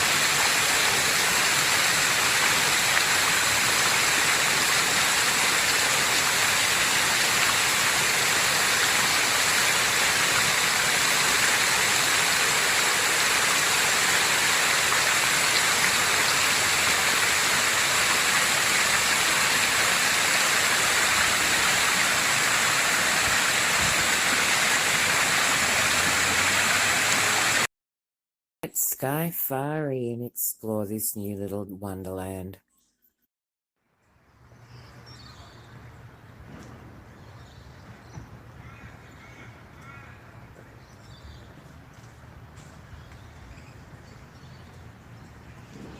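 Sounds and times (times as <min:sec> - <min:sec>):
fountain water splashing: 0:00.0 - 0:27.7.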